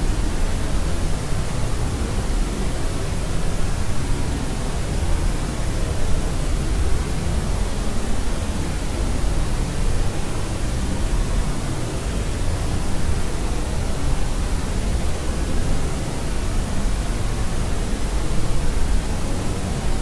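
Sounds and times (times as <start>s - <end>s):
steady pink noise hiss: 0.0s - 20.0s.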